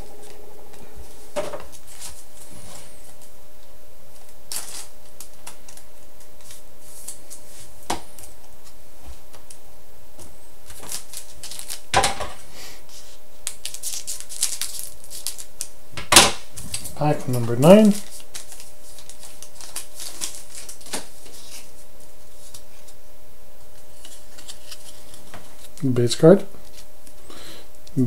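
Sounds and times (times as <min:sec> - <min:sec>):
faint steady hum: 0:00.0 - 0:28.0
cards rustling and clicking: 0:01.7 - 0:02.5, 0:04.2 - 0:08.3, 0:10.7 - 0:11.8, 0:13.4 - 0:15.7, 0:16.6 - 0:21.8, 0:23.8 - 0:25.9.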